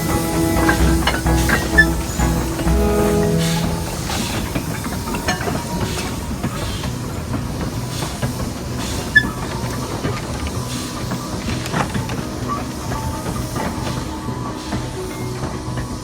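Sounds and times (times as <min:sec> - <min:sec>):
held tone: 0:00.0 - 0:04.9
steam hissing: 0:00.0 - 0:16.0.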